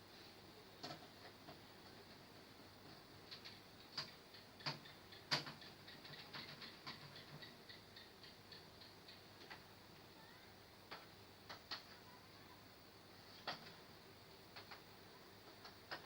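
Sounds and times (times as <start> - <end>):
small clicks and taps: 0.8 - 9.7, 10.9 - 12.0, 13.4 - 13.8, 14.5 - 16.0.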